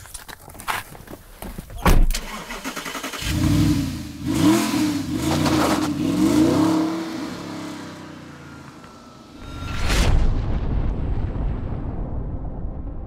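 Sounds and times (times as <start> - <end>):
car engine accelerating: 2.2 - 9.5.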